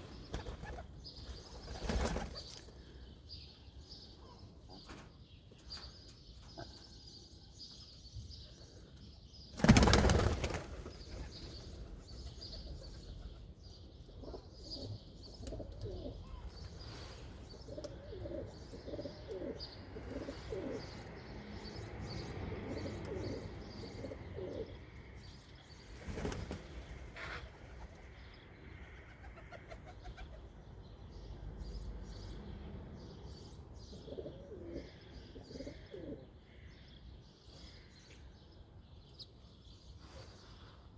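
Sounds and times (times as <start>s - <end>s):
small birds chirping: 0.0s - 40.9s
wing flapping: 9.6s - 11.3s
pigeons cooing: 14.2s - 16.5s, 17.5s - 21.3s, 22.2s - 24.8s, 33.9s - 36.4s.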